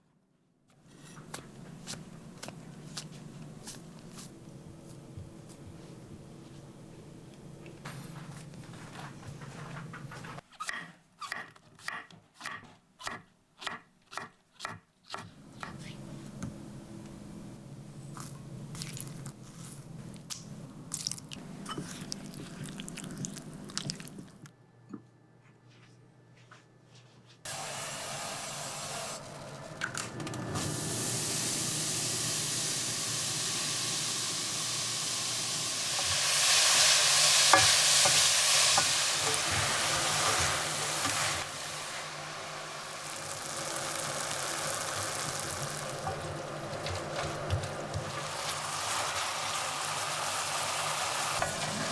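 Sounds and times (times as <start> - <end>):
food sizzling in a frying pan: 30.6 - 46.8, 47.8 - 51.8.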